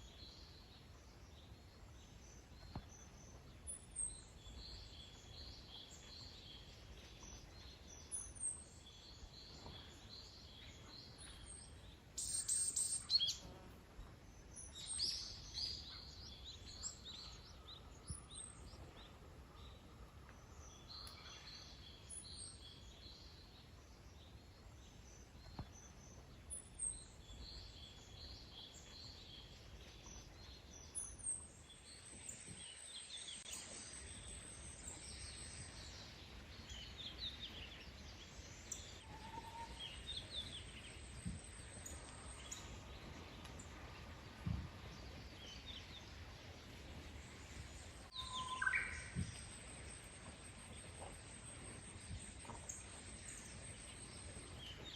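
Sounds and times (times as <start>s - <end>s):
faint background hiss: 0.0s - 54.9s
small birds chirping: 1.4s - 19.8s.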